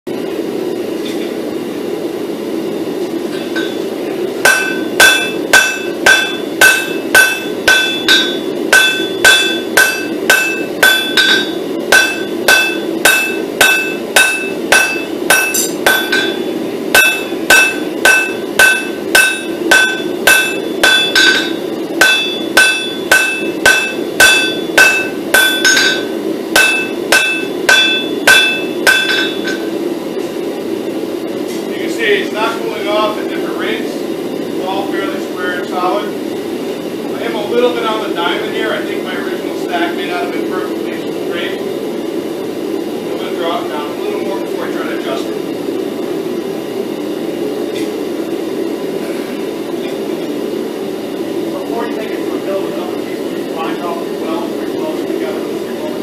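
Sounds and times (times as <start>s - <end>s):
hammer striking steel on anvil: 3.4s - 3.8s, 4.4s - 29.7s.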